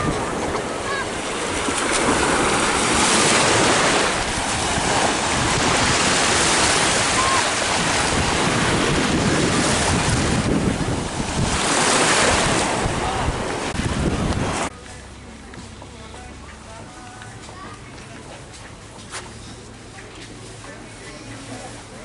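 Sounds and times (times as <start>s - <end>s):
wind buffeting microphone: 0.0s - 14.7s
sea surf washing ashore: 0.0s - 15.0s.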